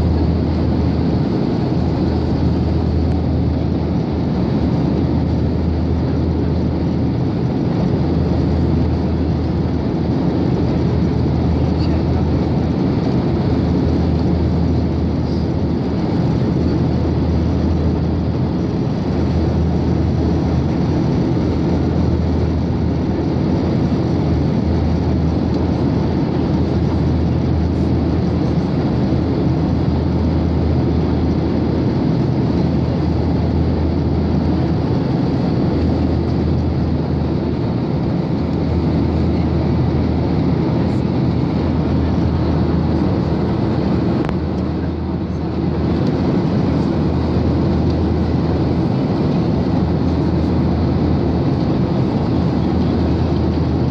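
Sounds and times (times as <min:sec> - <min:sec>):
airplane cabin low rumble: 0:00.0 - 0:53.9.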